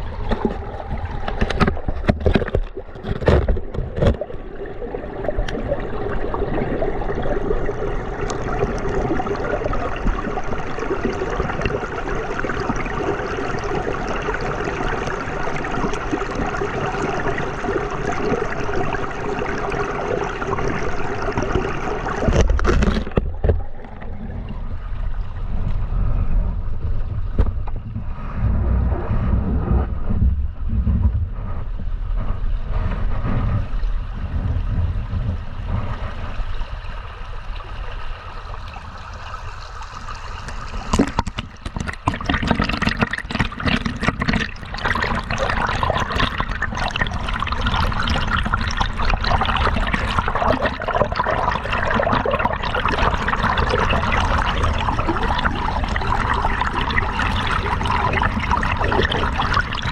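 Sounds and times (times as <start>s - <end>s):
water splashing: 0.0s - 26.1s, 35.9s - 59.9s
river water running and gurgling: 36.1s - 59.9s.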